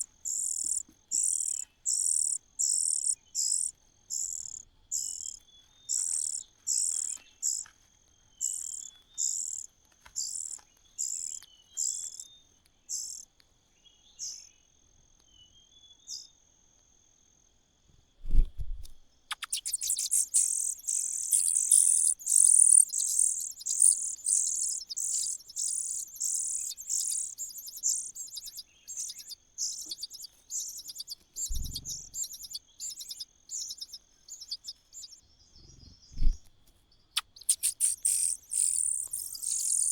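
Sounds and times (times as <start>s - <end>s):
nestling birds begging calls: 0.0s - 7.7s, 8.4s - 12.3s, 12.9s - 13.2s, 19.3s - 35.2s, 37.2s - 39.9s.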